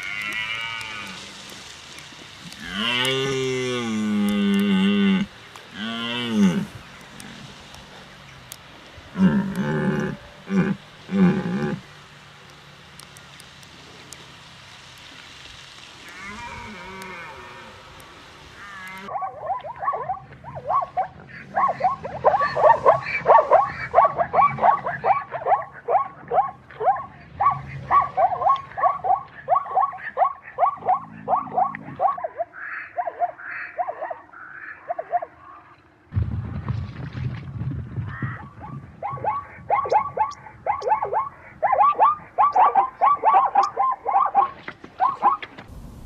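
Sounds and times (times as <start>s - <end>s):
hiss: 0.0s - 19.1s
animal calling in rapid series: 18.6s - 35.8s, 38.0s - 45.6s.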